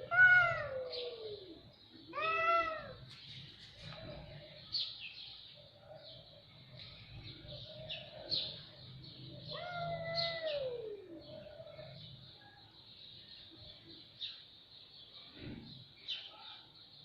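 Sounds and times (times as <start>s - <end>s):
cats meowing: 0.0s - 3.1s, 9.4s - 12.0s.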